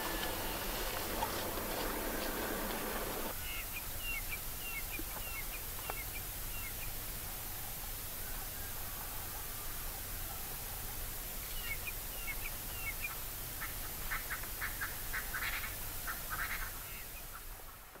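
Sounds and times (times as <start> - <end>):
bird calling: 0.0 - 6.9.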